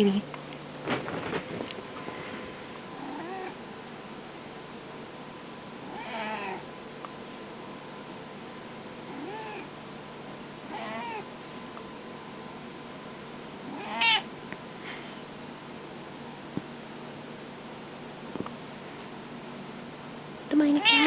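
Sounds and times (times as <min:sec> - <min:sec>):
mynah bird mimicking cat meow: 0:13.7 - 0:14.3, 0:20.8 - 0:21.0.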